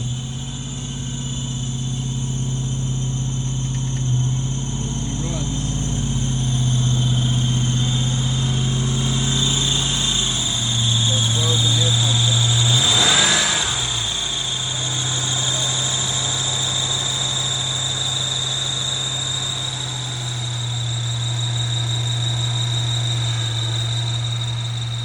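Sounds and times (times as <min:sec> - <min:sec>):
car engine idling: 0:00.0 - 0:25.0
high-pitched whine: 0:00.0 - 0:25.0.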